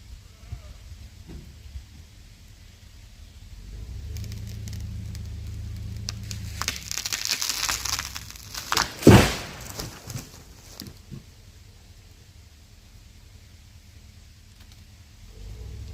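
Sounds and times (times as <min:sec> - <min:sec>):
low engine rumble: 0:00.0 - 0:15.9
tree cracking and snapping: 0:03.6 - 0:11.1
tree crashing to ground: 0:03.8 - 0:11.3
branches knocking: 0:03.9 - 0:11.3.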